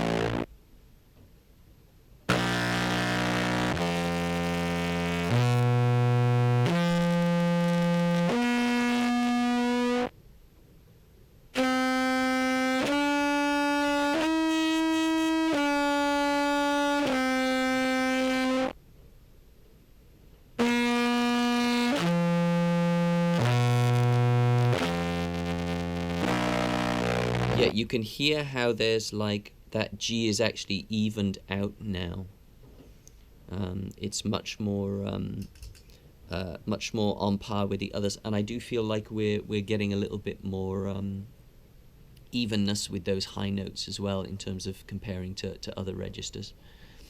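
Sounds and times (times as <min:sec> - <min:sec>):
contrabass clarinet held notes: 0:00.0 - 0:00.5, 0:02.3 - 0:10.1, 0:11.6 - 0:18.7, 0:20.6 - 0:27.7.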